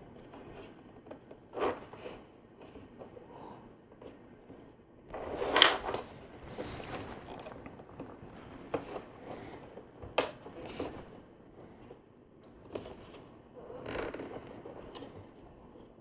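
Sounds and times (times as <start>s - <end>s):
plastic pieces rustling and scraping: 5.1s - 11.1s.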